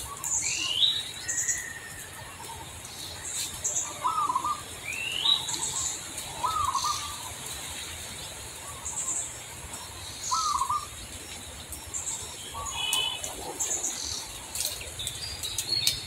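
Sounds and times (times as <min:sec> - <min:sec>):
bird warbling call: 0:03.2 - 0:07.4, 0:08.6 - 0:11.0, 0:11.8 - 0:16.0
bird high chirps: 0:10.2 - 0:11.0.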